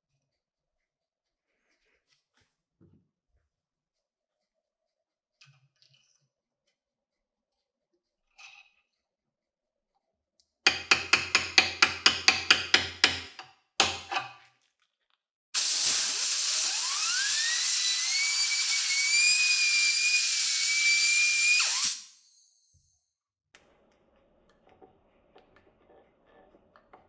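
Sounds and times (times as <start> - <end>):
sharp taps: 10.7 - 14.3
electric motor whining: 15.6 - 22.7.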